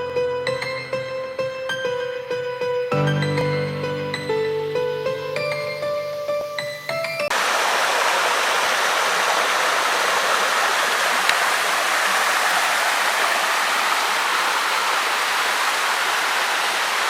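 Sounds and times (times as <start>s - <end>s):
background music: 0.0s - 7.3s
waterfall water rushing: 7.3s - 17.0s.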